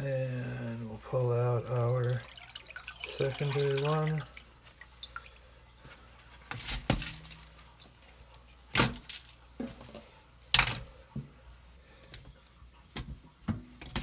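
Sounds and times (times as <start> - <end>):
plastic containers clattering: 6.5 - 7.7.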